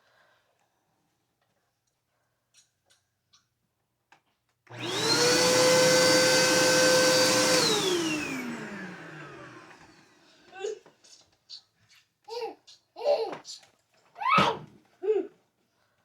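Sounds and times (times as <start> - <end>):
vacuum cleaner motor whine: 4.7 - 10.3.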